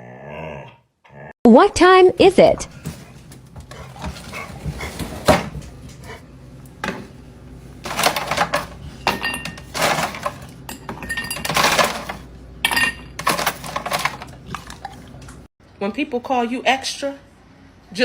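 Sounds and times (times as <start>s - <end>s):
dishes and metal utensils clattering: 2.8s - 6.0s, 7.8s - 15.3s.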